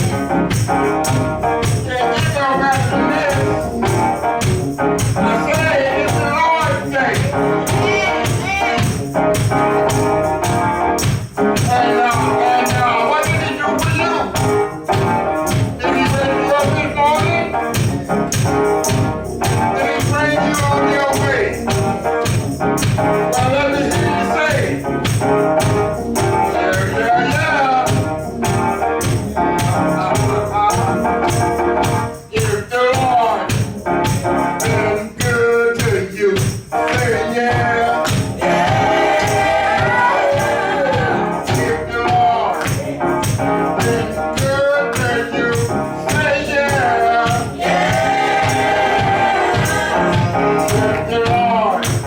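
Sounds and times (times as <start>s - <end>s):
percussive beat: 0.0s - 52.0s
worship singing with band: 0.0s - 52.0s.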